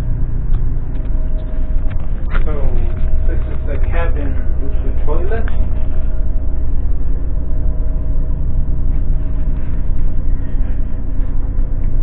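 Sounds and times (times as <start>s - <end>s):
faint steady hum: 0.0s - 12.0s
train rumbling: 0.0s - 12.0s.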